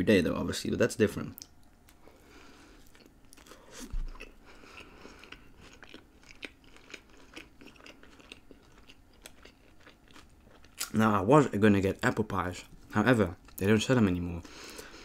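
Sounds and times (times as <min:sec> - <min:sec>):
person chewing a burger: 0:01.7 - 0:11.0.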